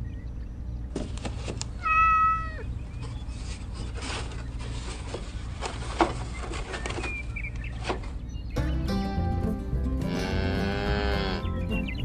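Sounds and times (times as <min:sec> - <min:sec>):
cat meowing: 0:01.8 - 0:02.7
cardboard tapping and rustling: 0:03.5 - 0:07.2.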